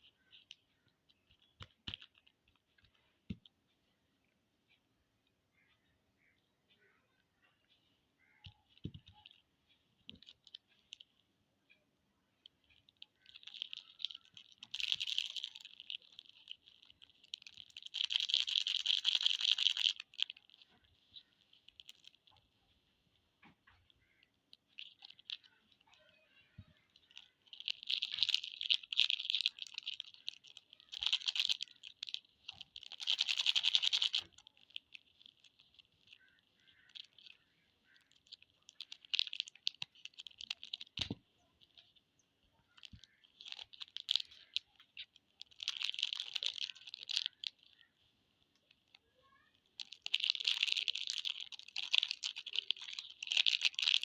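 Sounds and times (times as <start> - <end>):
plastic wrappers crinkling: 0.2 - 2.8, 12.4 - 54.0.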